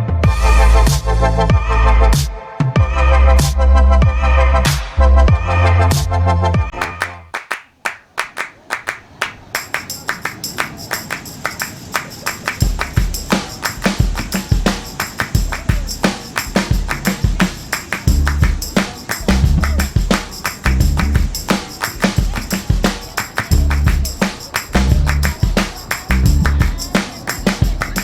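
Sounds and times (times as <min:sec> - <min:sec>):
fast percussion rhythm: 0:06.7 - 0:28.0
heavy bass beat: 0:12.6 - 0:28.0.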